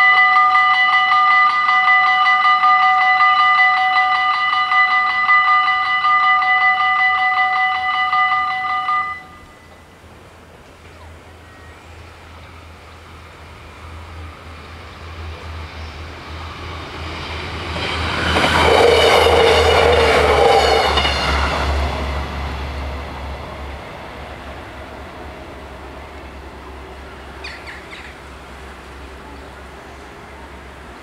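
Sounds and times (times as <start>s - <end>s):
level crossing bells ringing: 0.0s - 9.8s
diesel train engine drone: 0.0s - 31.0s
train rail noise: 0.0s - 31.0s.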